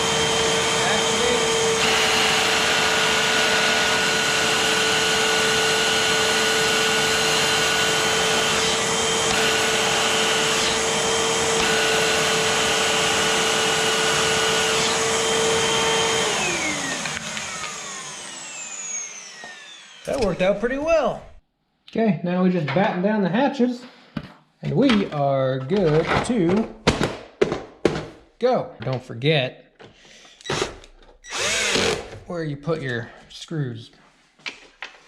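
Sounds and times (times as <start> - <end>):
vacuum cleaner motor whine: 0.0 - 21.4, 31.3 - 31.9.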